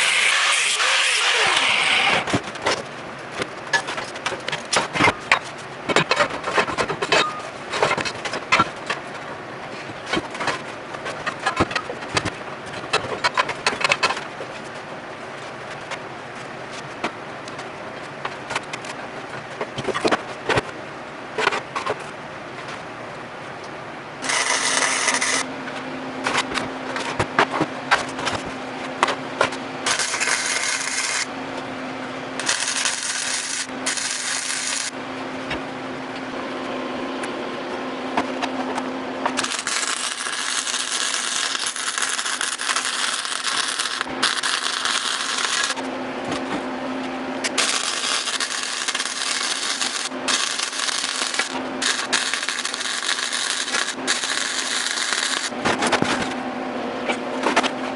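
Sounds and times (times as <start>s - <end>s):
welder crackling hiss: 0.0s - 2.2s, 24.2s - 25.4s, 29.9s - 31.3s, 32.4s - 34.9s, 39.4s - 45.8s, 47.6s - 55.5s.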